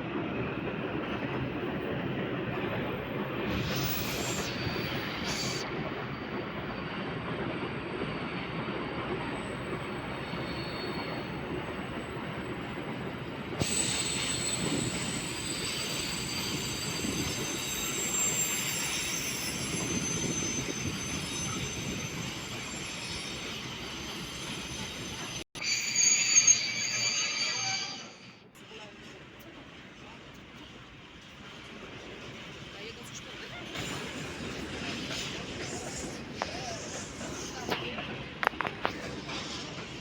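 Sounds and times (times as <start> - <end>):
freight train rumbling on rails: 0.0 - 25.6, 26.7 - 40.0
high-pitched wheel squeal: 9.3 - 11.4, 13.6 - 28.4.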